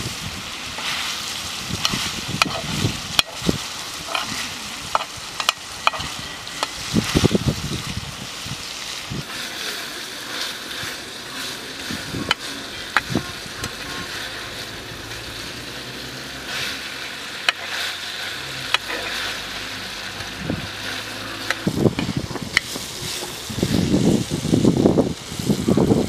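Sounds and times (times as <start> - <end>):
chicken sizzling in a pan: 0.0 - 26.0
metal spatula stirring: 1.8 - 6.8, 16.5 - 23.5.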